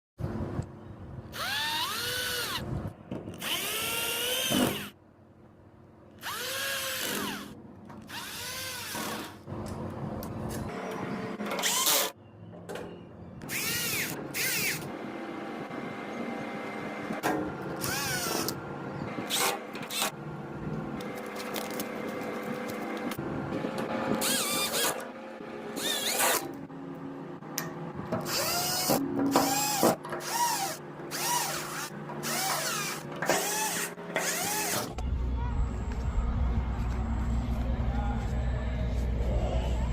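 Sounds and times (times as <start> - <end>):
small electric motor whining: 1.3 - 2.6, 3.4 - 4.9, 6.2 - 9.2, 13.4 - 14.9, 17.8 - 18.6, 24.1 - 25.0, 25.8 - 26.4, 28.3 - 35.0
low steady hum: 35.0 - 39.9.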